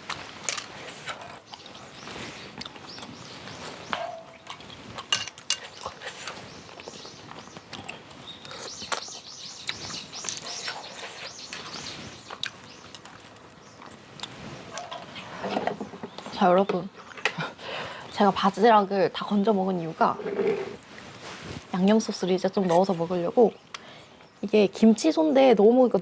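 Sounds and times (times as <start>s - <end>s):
eating sounds: 0.0s - 16.3s.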